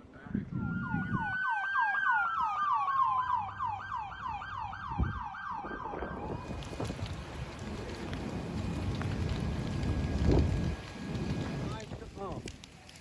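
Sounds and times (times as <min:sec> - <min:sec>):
wailing siren: 0:00.4 - 0:07.0
yelping siren: 0:00.5 - 0:06.5.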